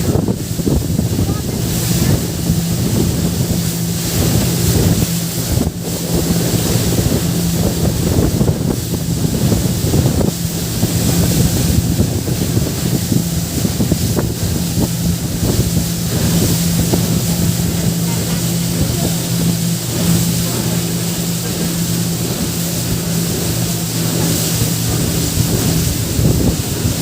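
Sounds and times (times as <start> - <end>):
motorboat engine humming: 0.0 - 27.0
water rushing past hull: 0.0 - 27.0
wind buffeting microphone: 0.0 - 27.0.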